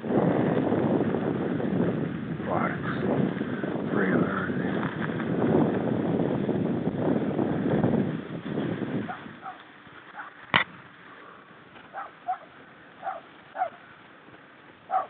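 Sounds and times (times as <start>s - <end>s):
dog barking: 9.1s - 9.6s, 10.2s - 10.4s, 11.9s - 13.8s.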